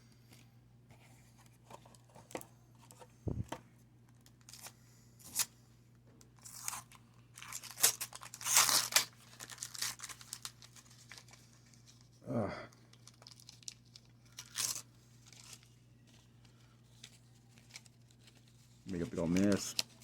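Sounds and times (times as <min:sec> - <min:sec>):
wax paper wrapper tearing: 0:06.4 - 0:12.0, 0:12.9 - 0:15.8, 0:16.5 - 0:20.0.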